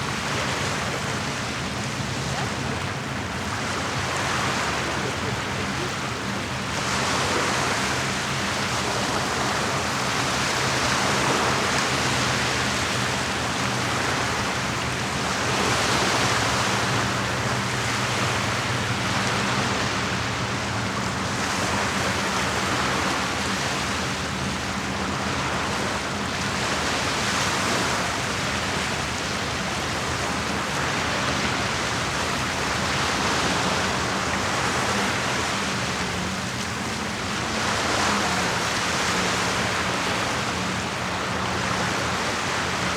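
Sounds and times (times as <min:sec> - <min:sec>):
waves washing against shore: 0:00.0 - 0:42.9.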